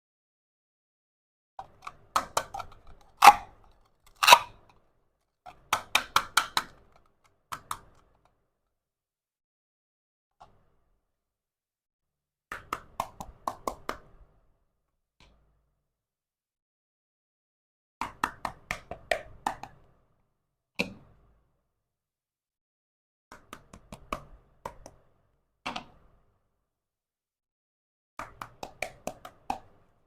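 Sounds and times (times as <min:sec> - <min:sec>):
toy kitchen pieces clicking: 0:01.8 - 0:04.6.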